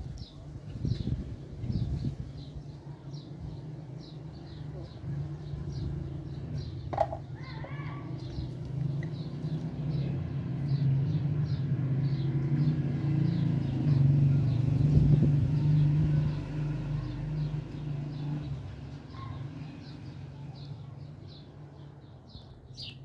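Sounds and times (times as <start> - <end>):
faint birds chirping: 0.0 - 23.0
vehicle engine passing: 7.9 - 20.4.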